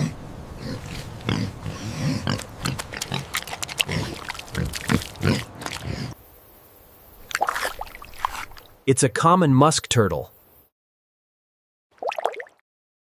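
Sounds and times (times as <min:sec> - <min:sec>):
pig grunting: 0:00.0 - 0:06.2.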